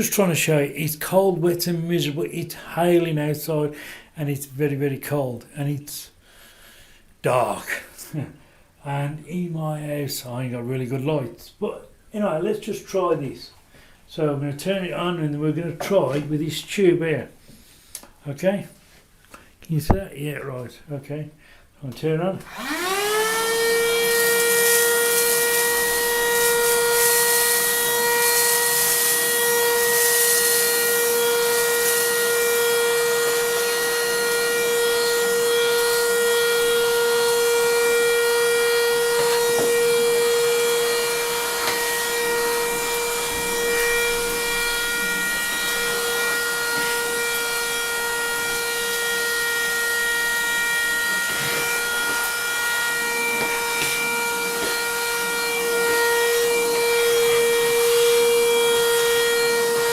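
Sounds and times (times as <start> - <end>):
handheld vacuum cleaner whine: 22.4 - 59.9.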